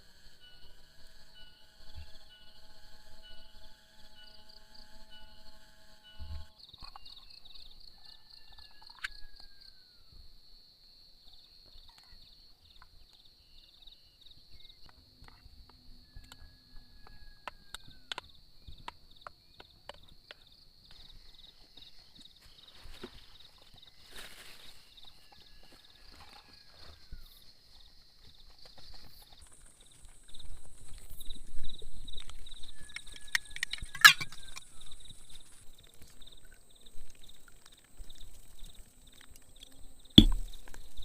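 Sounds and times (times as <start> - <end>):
insects chirring: 0.0 - 41.0
sharp clicks and knocks: 40.2 - 40.8.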